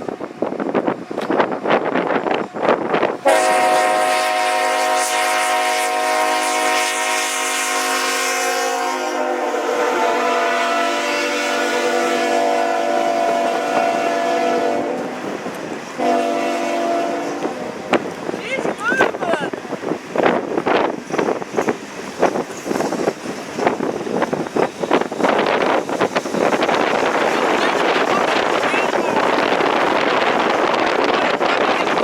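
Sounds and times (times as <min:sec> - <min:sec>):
wind buffeting microphone: 0:00.0 - 0:06.4, 0:09.2 - 0:32.0
locomotive air horn blast: 0:03.2 - 0:15.2, 0:16.0 - 0:18.0.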